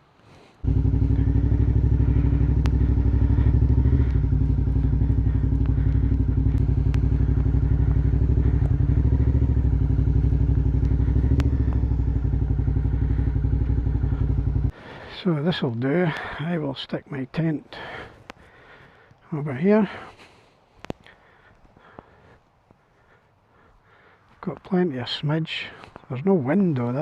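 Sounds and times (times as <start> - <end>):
motorcycle engine running: 0.6 - 14.8
faint sharp clicks: 2.5 - 3.0, 5.5 - 7.7, 10.2 - 12.0, 18.2 - 18.5, 20.8 - 22.1.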